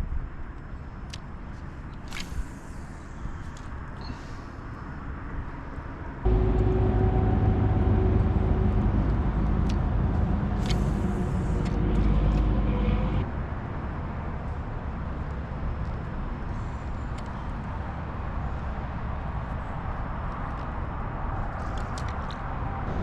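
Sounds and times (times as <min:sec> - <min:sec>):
steady motor drone: 0:06.2 - 0:13.3.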